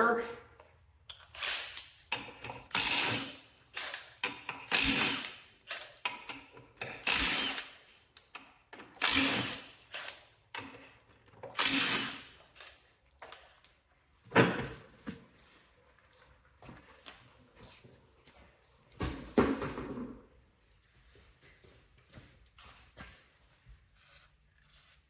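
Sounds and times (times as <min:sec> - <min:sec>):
ratchet wrench clicking: 0:01.3 - 0:01.9, 0:02.7 - 0:07.8.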